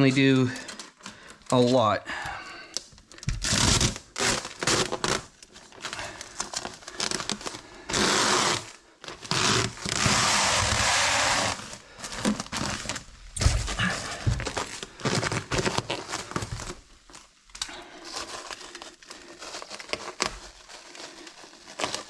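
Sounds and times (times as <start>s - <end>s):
paper crinkling and rustling: 0.0s - 1.8s, 2.8s - 8.0s, 11.5s - 22.0s
paper being torn: 19.3s - 22.0s.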